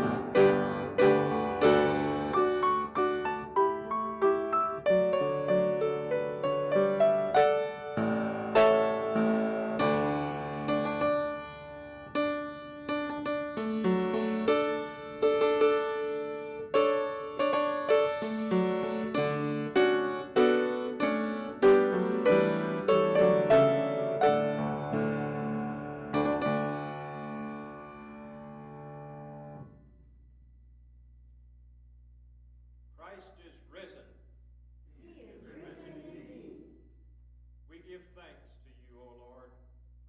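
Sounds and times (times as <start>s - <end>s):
slow piano chords: 0.0s - 30.1s.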